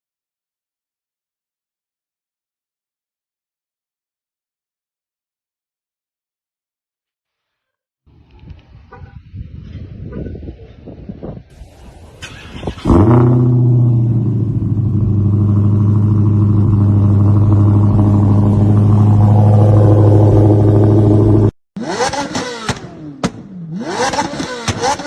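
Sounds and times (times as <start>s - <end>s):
car engine idling: 11.6s - 21.5s
engine-like sound changing pitch: 11.6s - 25.0s.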